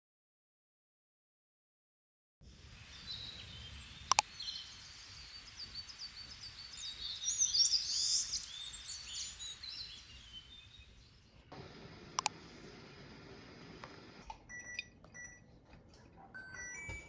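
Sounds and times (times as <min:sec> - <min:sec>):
wild birds singing and chirping: 0:02.8 - 0:14.2
sharp double click: 0:04.1 - 0:04.3, 0:12.1 - 0:12.5.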